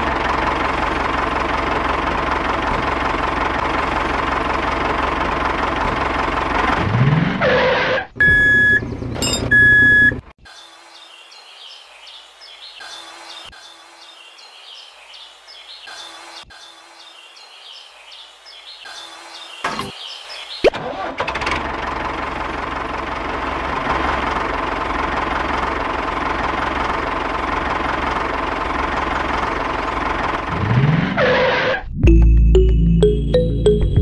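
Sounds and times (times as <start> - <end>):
tractor engine running: 0.0 - 10.4, 20.7 - 34.0.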